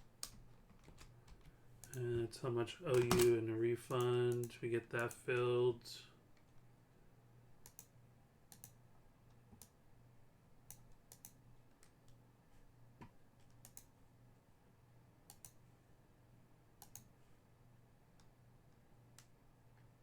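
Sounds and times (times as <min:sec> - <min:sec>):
low steady hum: 0:00.0 - 0:20.0
faint computer clicks: 0:07.6 - 0:08.8, 0:13.0 - 0:14.0, 0:16.8 - 0:17.1.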